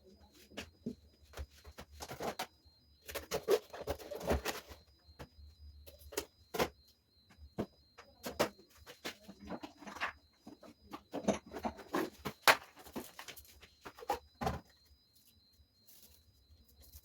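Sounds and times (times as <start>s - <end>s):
items knocked and set down: 14.0s - 14.7s.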